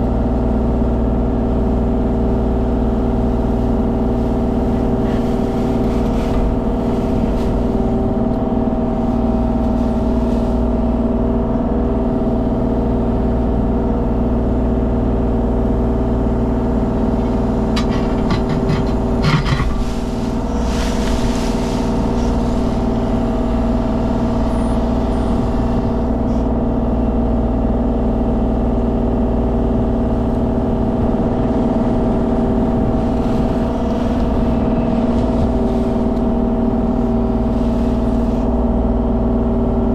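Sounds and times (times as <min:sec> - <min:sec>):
excavator diesel engine running: 0:00.0 - 0:39.9
rattling clatter: 0:17.2 - 0:21.9.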